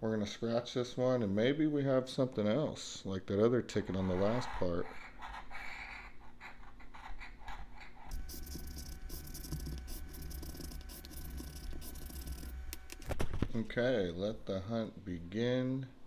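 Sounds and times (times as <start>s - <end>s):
scratching lottery ticket: 4.1s - 13.2s
low steady hum: 8.1s - 16.0s.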